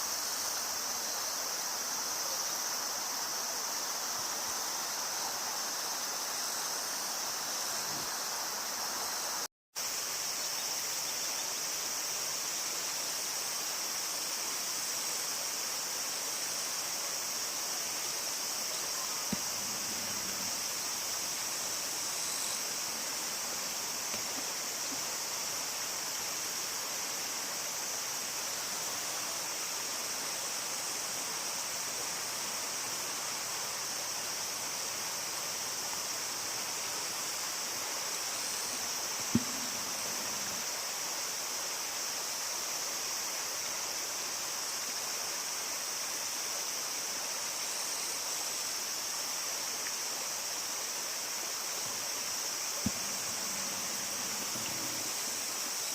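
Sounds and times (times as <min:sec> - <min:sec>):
steady outdoor hiss: 0:00.0 - 0:55.9
sharp knock: 0:39.2 - 0:40.6, 0:52.8 - 0:53.6.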